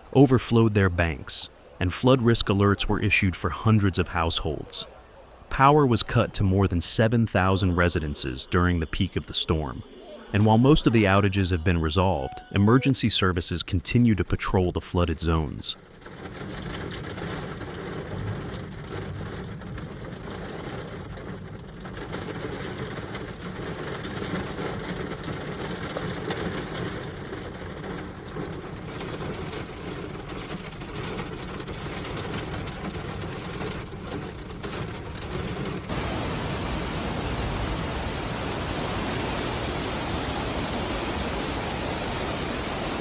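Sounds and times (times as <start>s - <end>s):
rain rumbling: 0.0s - 13.5s, 15.3s - 43.0s
even rushing noise: 35.9s - 43.0s.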